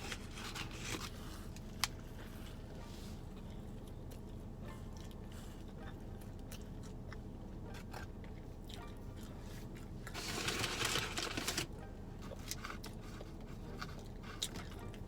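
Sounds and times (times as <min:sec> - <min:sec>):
chewing crunches and mouth clicks: 0:03.3 - 0:10.9, 0:12.2 - 0:15.0.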